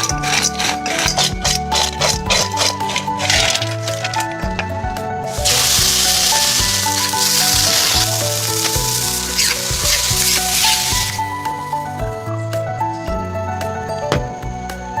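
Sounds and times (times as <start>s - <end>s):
background music: 0.0s - 15.0s
food sizzling in hot oil: 5.3s - 12.0s.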